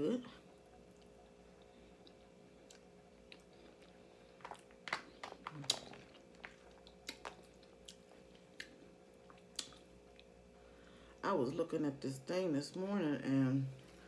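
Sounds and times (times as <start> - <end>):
person chewing with wet smacks: 0.4 - 10.6.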